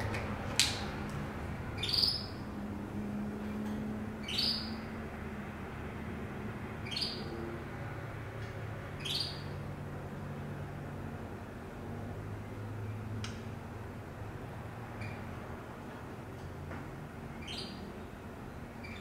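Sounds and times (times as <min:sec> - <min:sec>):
bird chirping: 0:01.8 - 0:02.5, 0:04.2 - 0:04.9, 0:06.8 - 0:07.4, 0:09.0 - 0:09.6, 0:17.3 - 0:18.2, 0:18.8 - 0:19.0.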